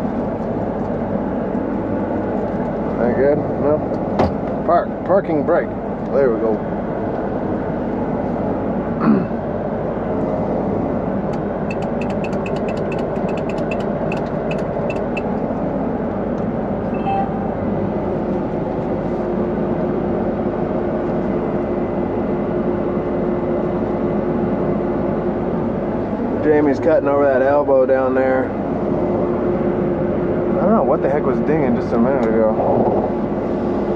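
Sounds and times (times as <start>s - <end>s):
combine harvester running: 0.0s - 33.9s
alarm beeping rapidly: 11.7s - 15.3s, 16.9s - 17.7s.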